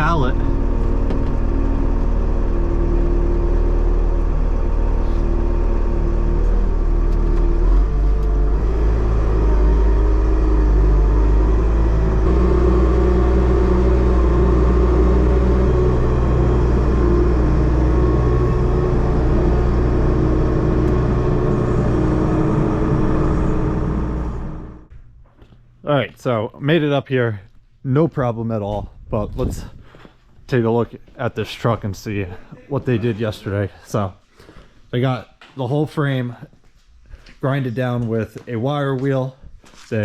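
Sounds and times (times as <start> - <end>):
diesel engine running under load: 0.0 - 24.9.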